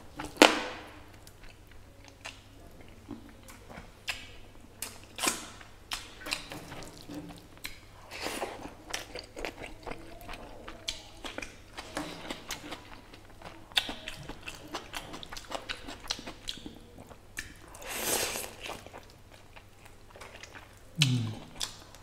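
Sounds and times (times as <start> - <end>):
wet chewing: 1.2 - 22.0
sticky mouth clicks: 21.0 - 21.8.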